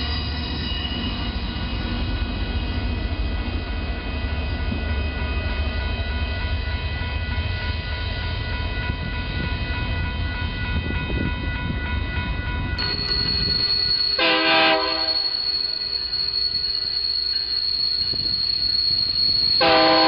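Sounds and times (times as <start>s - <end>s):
high wheel squeal: 0.0s - 6.2s, 12.8s - 20.0s
diesel locomotives rumbling past: 0.0s - 20.0s
steady whining tones: 0.0s - 20.0s
train horn blast: 14.2s - 15.2s, 19.6s - 20.0s.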